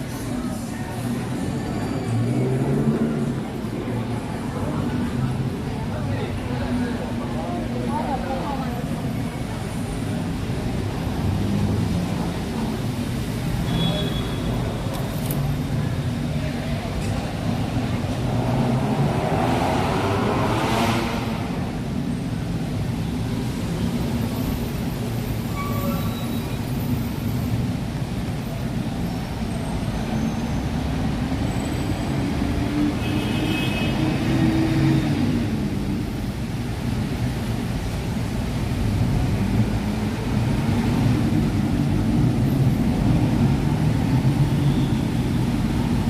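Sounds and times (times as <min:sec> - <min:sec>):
faint voices: 0:00.0 - 0:33.0
low rumble of public space: 0:00.0 - 0:34.0.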